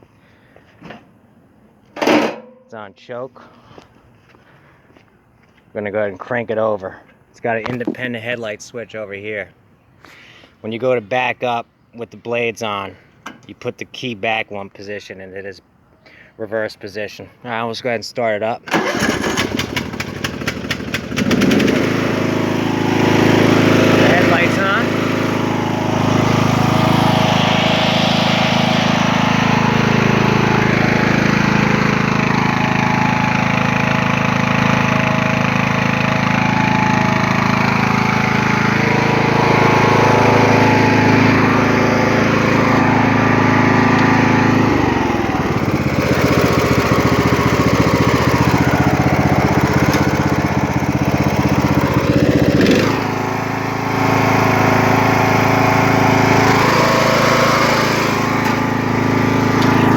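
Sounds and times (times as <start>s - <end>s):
lawn tractor engine running: 2.0s - 2.5s, 18.7s - 59.9s.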